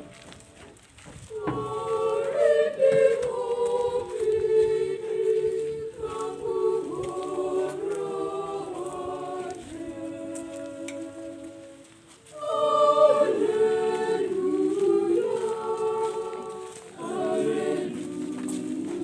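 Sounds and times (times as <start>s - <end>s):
choir singing long notes: 0.0s - 0.7s, 1.3s - 19.0s.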